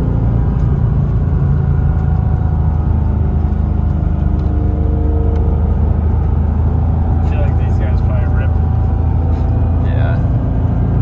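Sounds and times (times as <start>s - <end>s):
car engine rumble: 0.0s - 11.0s
road noise: 0.0s - 11.0s.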